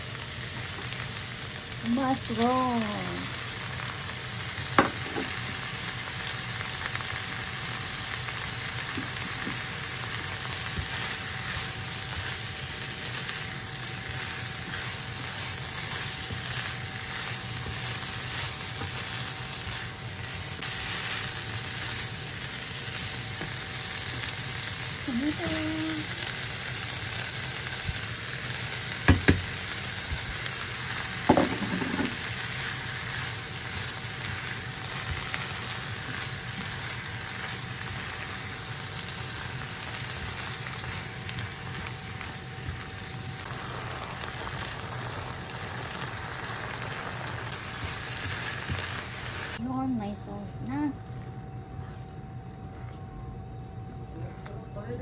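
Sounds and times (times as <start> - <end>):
food sizzling in frying pan: 0.0 - 49.6
spatula stirring: 11.0 - 23.6.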